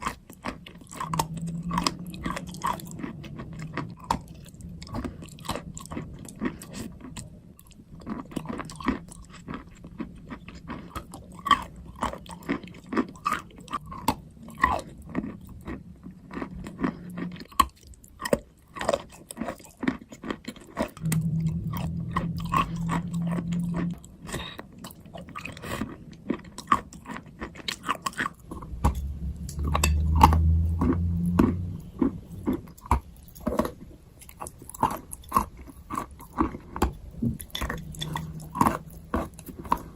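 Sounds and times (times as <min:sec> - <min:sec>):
chewing crunches: 0:00.0 - 0:39.9
low hum: 0:00.8 - 0:07.5, 0:21.0 - 0:26.6, 0:28.3 - 0:33.5, 0:36.7 - 0:39.9.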